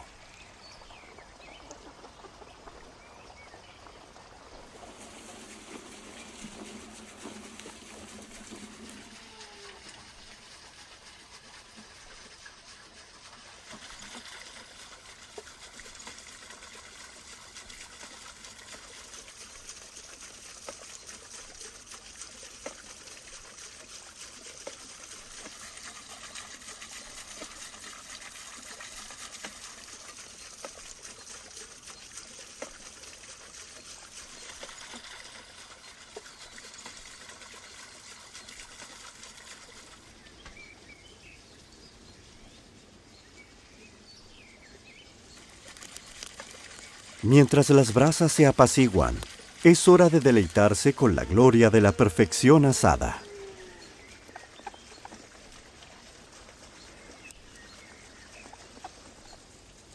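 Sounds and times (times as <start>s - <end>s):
faint crackles: 0.0s - 10.8s, 45.3s - 59.5s
running water rushing: 0.0s - 41.2s, 45.1s - 59.9s.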